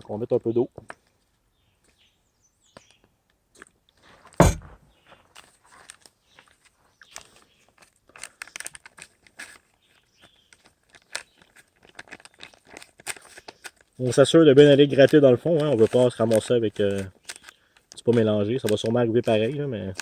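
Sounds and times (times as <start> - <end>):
loud knock: 4.4 - 4.8.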